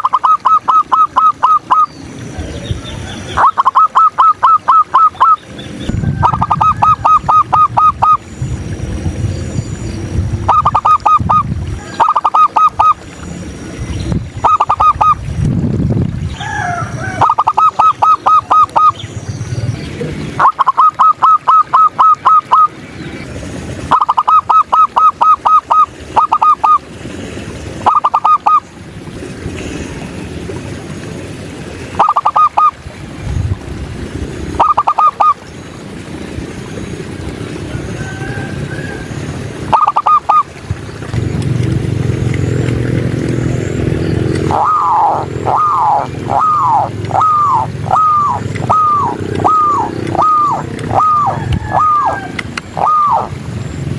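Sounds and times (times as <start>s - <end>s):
dove staccato cooing: 0.0s - 1.9s, 2.5s - 8.2s, 10.4s - 13.0s, 16.4s - 19.0s, 20.3s - 22.8s, 23.8s - 26.9s, 27.8s - 28.6s, 31.8s - 32.8s, 34.6s - 35.4s, 37.4s - 53.4s
bird gliding call: 0.0s - 15.3s, 16.3s - 19.6s, 20.3s - 29.0s, 31.7s - 32.9s, 34.5s - 53.9s.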